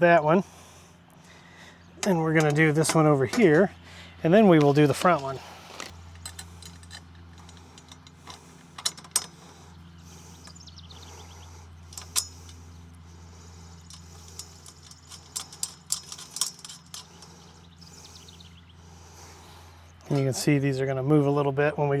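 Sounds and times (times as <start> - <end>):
steady low hum: 0.0 - 22.0
metal parts clinking: 2.0 - 11.2, 11.8 - 18.4.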